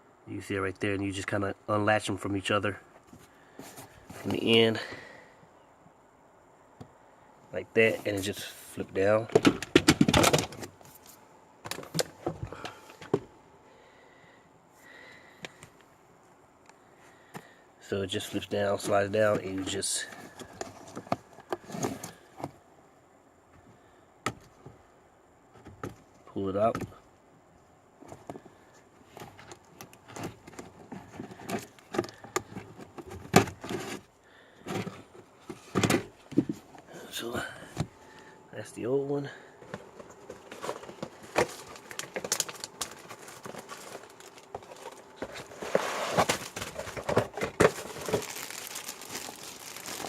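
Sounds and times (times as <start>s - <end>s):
filter scraping and rustling: 29.0s - 36.9s, 39.6s - 50.0s.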